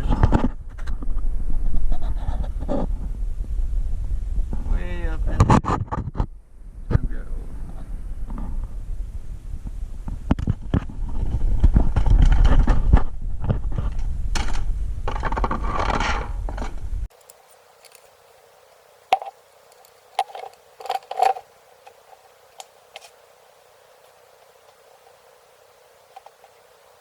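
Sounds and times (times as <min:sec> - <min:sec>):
heavy rumble: 0:00.0 - 0:17.1
tools scraping and knocking: 0:19.1 - 0:22.0.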